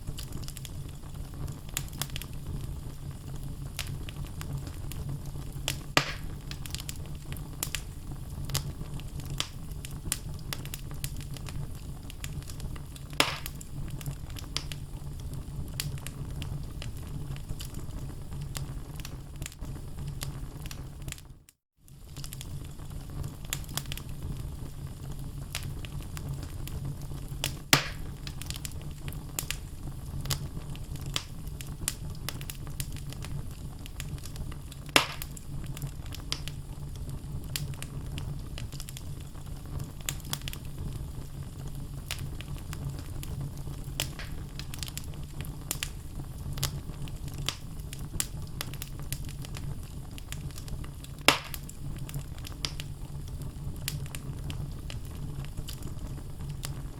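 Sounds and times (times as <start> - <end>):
fire crackling: 0.0 - 56.9
fire rumbling: 0.0 - 56.9
loud wood pops: 6.0 - 6.3, 13.2 - 13.5, 27.8 - 28.1, 35.0 - 35.3, 44.0 - 44.4, 51.3 - 51.7.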